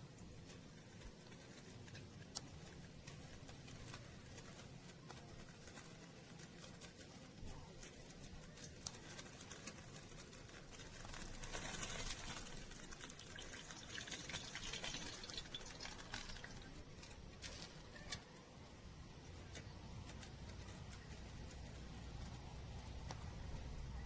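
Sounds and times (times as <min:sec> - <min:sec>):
liquid running: 0:12.0 - 0:17.0.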